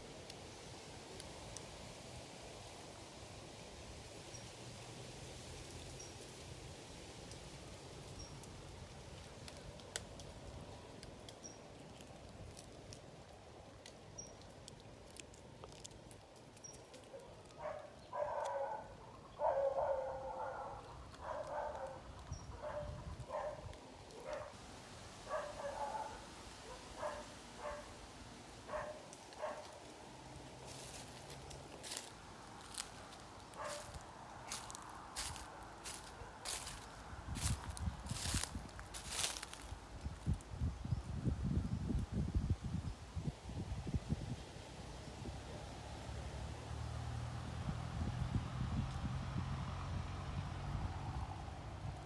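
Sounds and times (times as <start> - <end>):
animal bark-like calls: 17.2 - 24.6, 25.3 - 28.0, 28.7 - 29.8.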